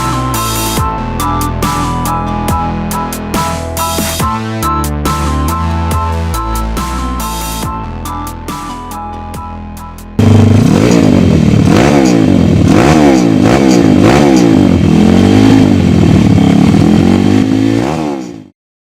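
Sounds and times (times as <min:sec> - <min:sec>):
electronic music: 0:00.0 - 0:11.3
motorbike engine revving: 0:10.2 - 0:18.6.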